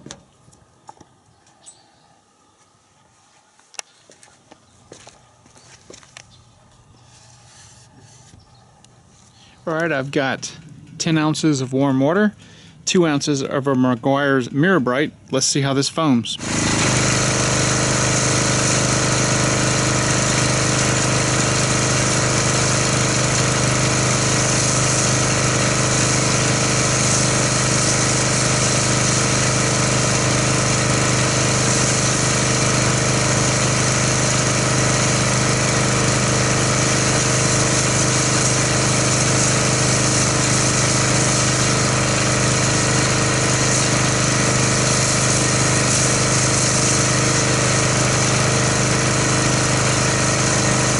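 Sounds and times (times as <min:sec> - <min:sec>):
pressure washer running: 0:16.4 - 0:50.9.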